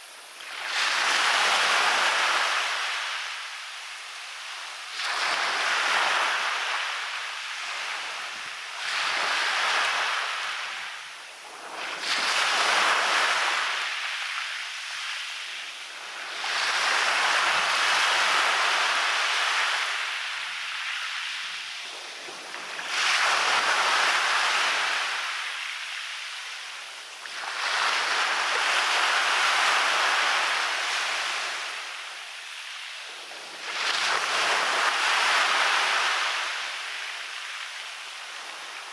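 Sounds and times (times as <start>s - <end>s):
small waves breaking on beach: 0.0s - 38.9s.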